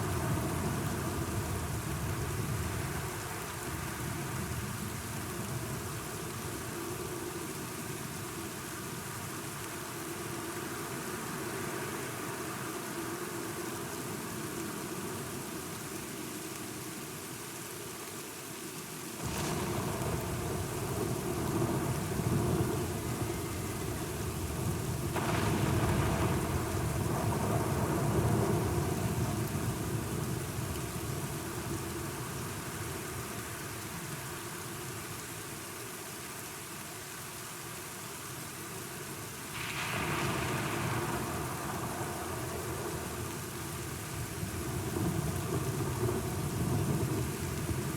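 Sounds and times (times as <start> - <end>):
steady rain: 0.0 - 47.9
rolling thunder: 19.2 - 31.1, 39.6 - 47.9.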